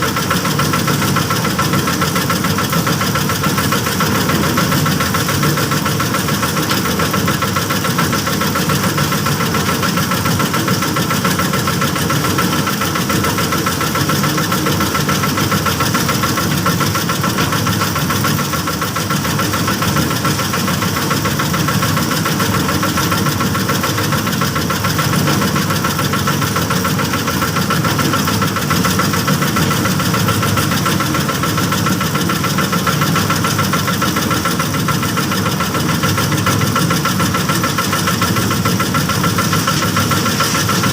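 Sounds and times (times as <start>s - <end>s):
small petrol engine running: 0.0s - 40.9s.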